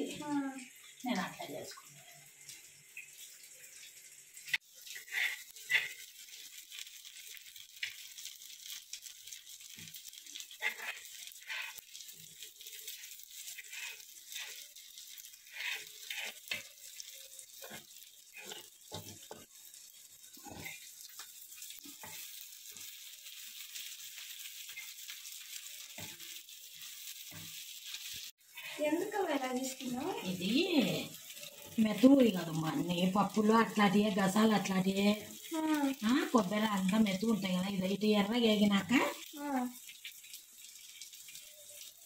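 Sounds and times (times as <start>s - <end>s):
vegetables sizzling in oil: 0.0s - 42.0s
steel spoon scraping a pan: 4.5s - 6.4s, 10.4s - 29.1s.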